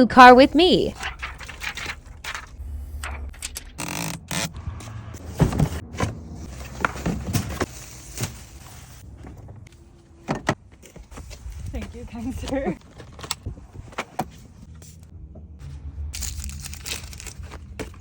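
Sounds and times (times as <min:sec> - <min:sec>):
low rumble: 0:00.5 - 0:09.8.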